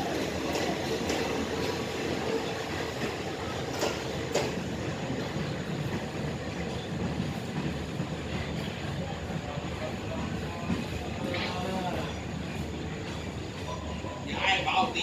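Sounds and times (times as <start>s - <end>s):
train rumbling on rails: 0.0s - 15.0s
wheels clicking over rail joint: 3.0s - 4.7s.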